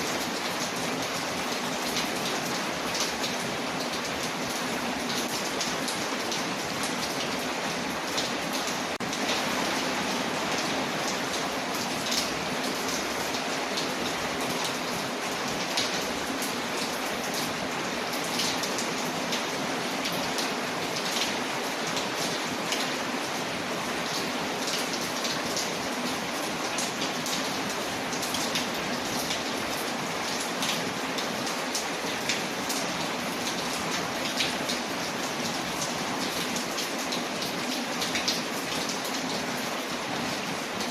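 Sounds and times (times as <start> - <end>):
rain on a window: 0.0 - 40.9.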